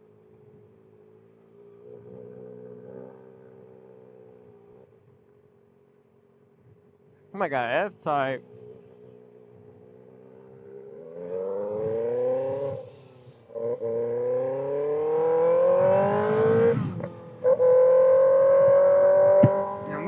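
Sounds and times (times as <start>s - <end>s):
motorcycle engine revving: 10.2s - 20.0s.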